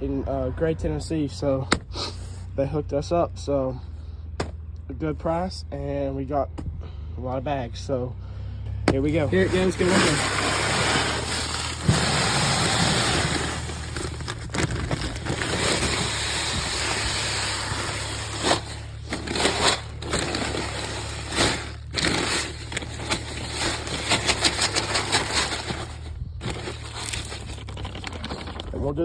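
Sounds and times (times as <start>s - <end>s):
pellets pouring into a hopper: 9.1s - 28.6s.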